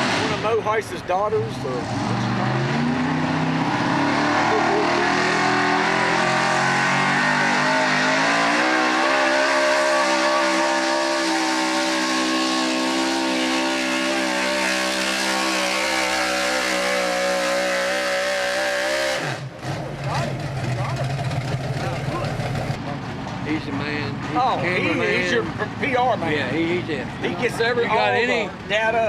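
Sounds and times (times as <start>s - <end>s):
truck engine at full throttle: 0.0s - 28.9s.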